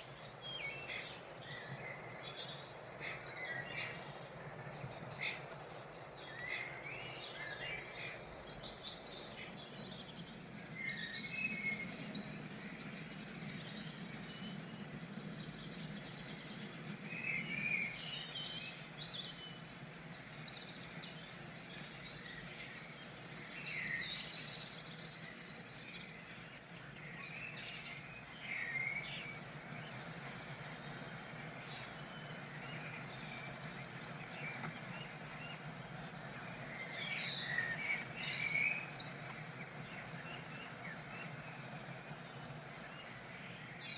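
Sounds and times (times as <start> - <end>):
small songbirds chirping: 0.0 - 43.9
steady background noise: 0.0 - 43.9.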